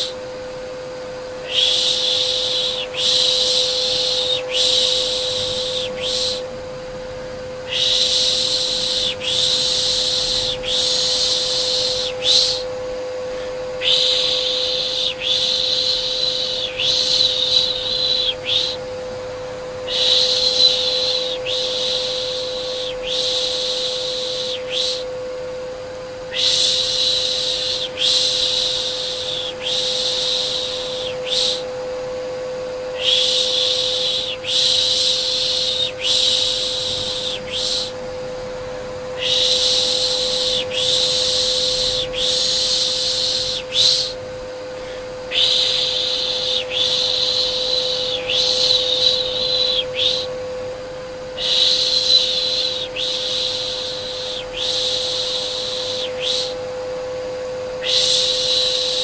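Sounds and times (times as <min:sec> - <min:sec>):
vacuum cleaner running: 0:00.0 - 0:59.0
person shushing: 0:01.4 - 0:06.5, 0:07.7 - 0:12.7, 0:13.3 - 0:18.8, 0:26.3 - 0:31.7, 0:39.2 - 0:50.3.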